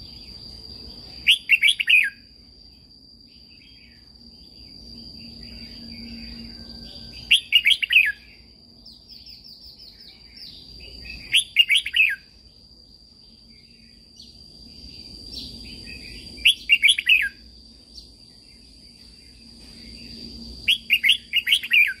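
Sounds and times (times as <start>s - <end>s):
steady high-pitched whine: 0.0s - 22.0s
bird singing warbling phrases: 1.2s - 2.3s, 5.2s - 12.6s, 13.6s - 18.6s, 20.6s - 22.0s.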